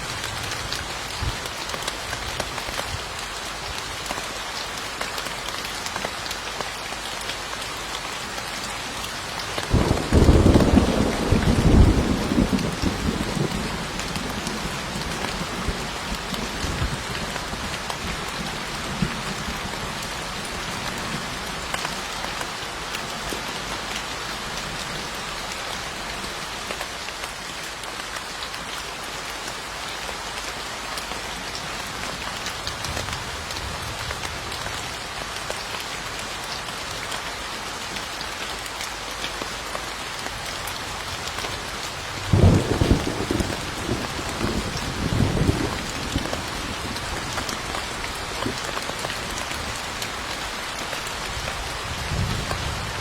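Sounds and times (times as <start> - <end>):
heavy rain falling: 0.0 - 53.0
thunder rolling: 9.7 - 14.7, 42.3 - 47.0.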